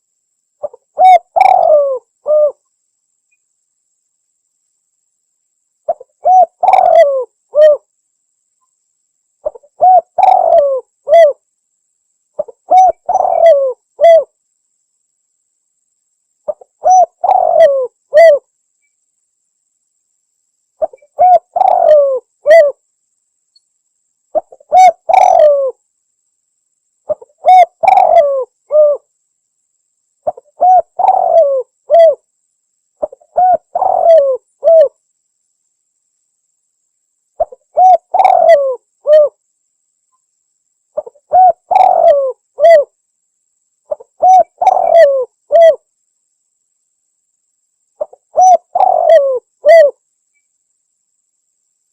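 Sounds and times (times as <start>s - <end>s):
dove cooing: 0.6s - 2.6s, 5.9s - 7.9s, 9.4s - 11.4s, 12.4s - 14.3s, 16.5s - 18.4s, 20.8s - 22.8s, 24.4s - 25.8s, 27.1s - 29.0s, 30.2s - 32.2s, 33.0s - 35.0s, 37.4s - 39.4s, 41.0s - 42.9s, 43.9s - 45.8s, 48.0s - 50.0s.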